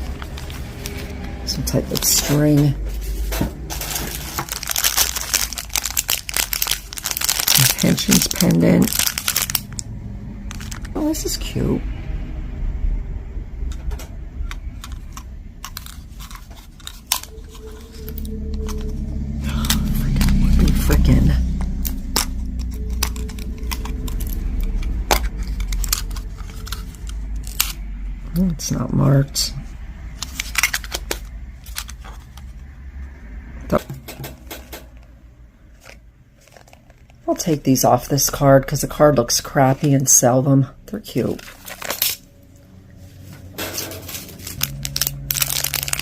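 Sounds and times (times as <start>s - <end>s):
low rumble: 0.0s - 46.0s
jewelry clicking and clinking: 21.6s - 27.8s.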